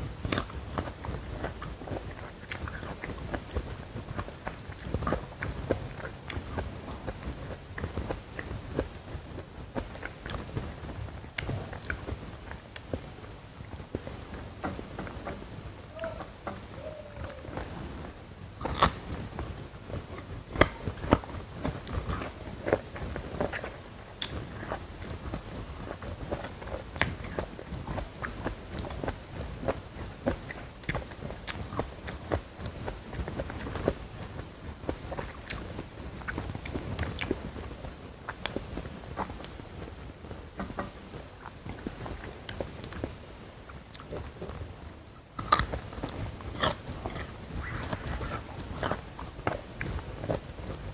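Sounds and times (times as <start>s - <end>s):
crunchy bites and chewing: 0.2s - 8.9s, 18.6s - 38.6s, 45.4s - 50.8s.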